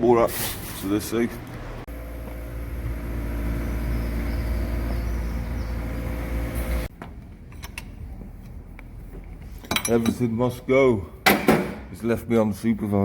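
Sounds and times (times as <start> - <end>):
vehicle engine rumbling: 0.7 - 10.4.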